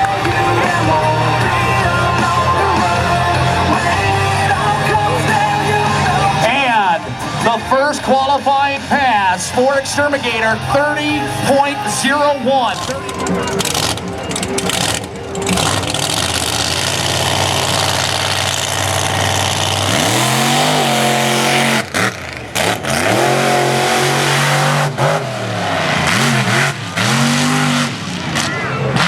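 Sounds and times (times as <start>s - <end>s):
engine revving: 0.0s - 29.0s
truck engine roaring: 0.0s - 29.0s.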